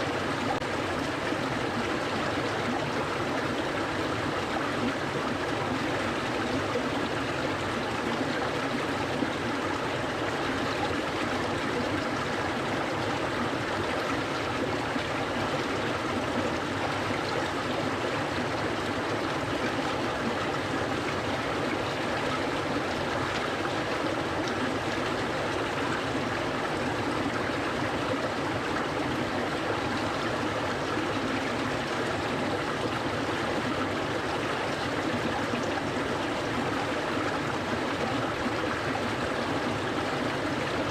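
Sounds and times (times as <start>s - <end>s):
stream flowing over rocks: 0.0s - 40.9s.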